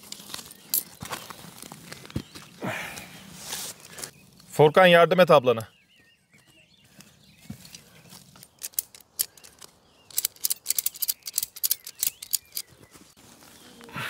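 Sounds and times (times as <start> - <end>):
faint bird chirps: 5.6 - 8.6, 9.2 - 14.0.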